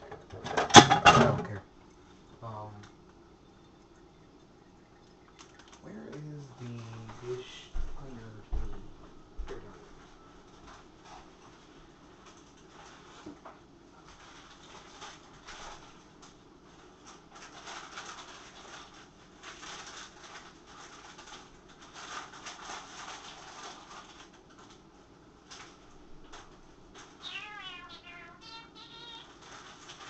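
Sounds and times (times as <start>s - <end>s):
plastic bag crinkling: 14.0s - 30.0s
high wavering cry: 27.2s - 29.3s.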